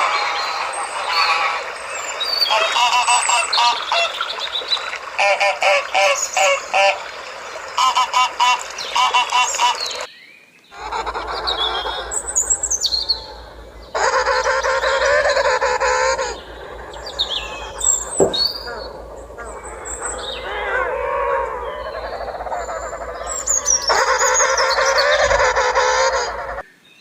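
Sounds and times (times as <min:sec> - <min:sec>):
waterfowl honking: 0:00.0 - 0:10.1, 0:10.8 - 0:26.6
loud many-voiced bird call: 0:00.0 - 0:27.0
high bird chirps: 0:10.8 - 0:26.6.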